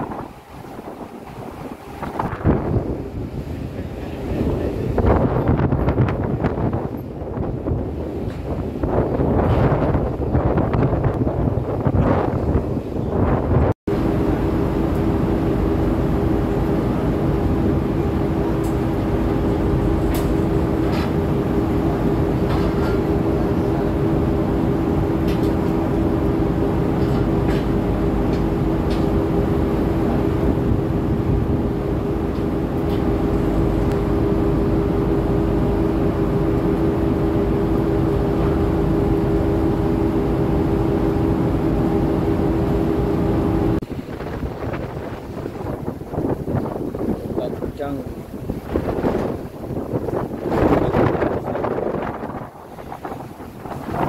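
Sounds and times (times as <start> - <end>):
ship machinery drone: 0.0 - 54.0.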